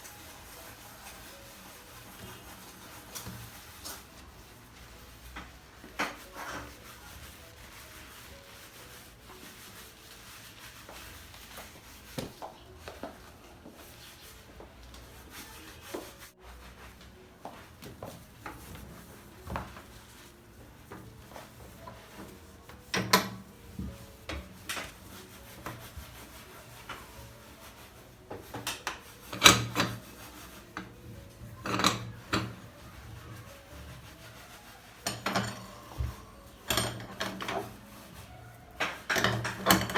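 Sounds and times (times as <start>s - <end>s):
objects rubbing and scraping: 0.0s - 39.9s
objects clattering: 30.8s - 32.8s, 35.0s - 37.9s, 38.8s - 39.9s.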